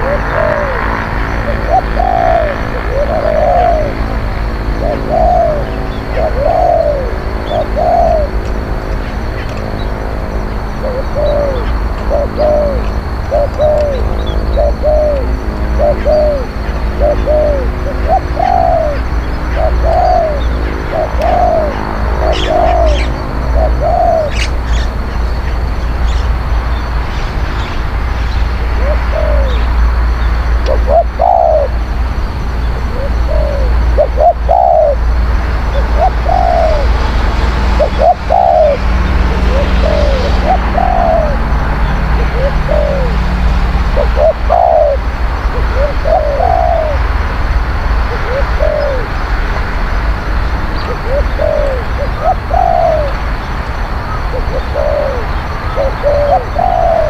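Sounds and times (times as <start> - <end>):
doves cooing: 0.0 - 27.0, 28.5 - 49.4, 50.2 - 57.0.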